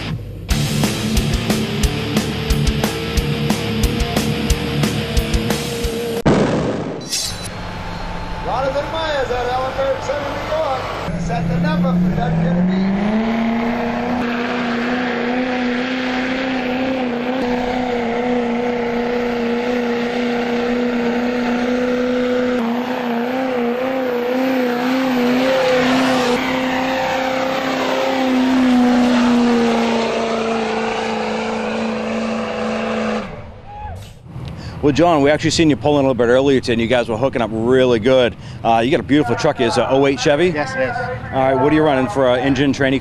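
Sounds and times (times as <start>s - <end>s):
diesel engine at high revs: 0.0s - 6.3s, 7.5s - 33.6s.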